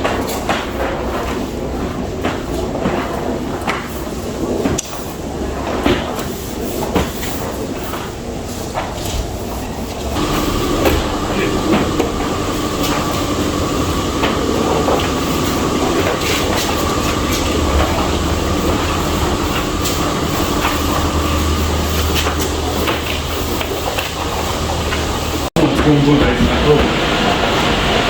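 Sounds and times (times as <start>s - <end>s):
pump whine: 0.0s - 28.0s
high-pressure water spray hissing: 10.2s - 25.5s.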